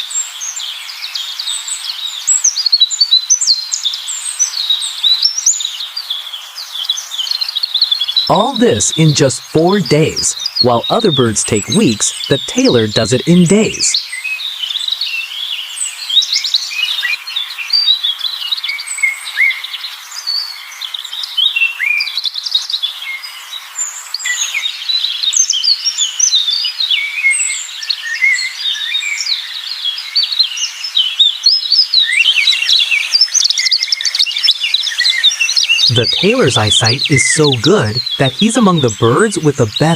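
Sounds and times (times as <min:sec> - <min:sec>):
chorus of birds chirping: 0:31.7 - 0:39.9.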